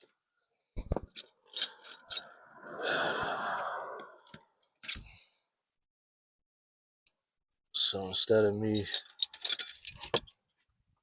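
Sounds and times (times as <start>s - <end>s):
breathy rush: 1.6s - 4.5s.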